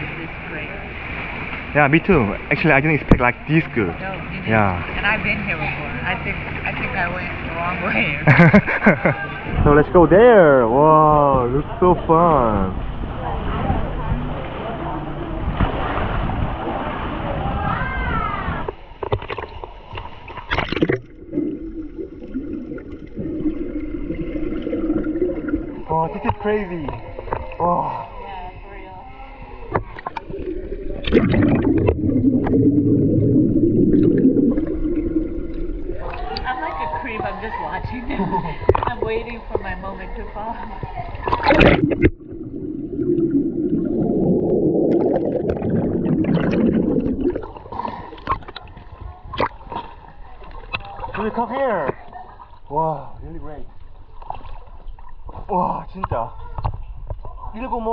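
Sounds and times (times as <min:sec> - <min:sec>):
wavering underwater hum: 0:00.0 - 0:51.3
water splash: 0:15.3 - 0:27.6, 0:29.7 - 0:36.9, 0:41.2 - 0:52.5
splash into water: 0:15.5 - 0:19.6, 0:30.9 - 0:32.7.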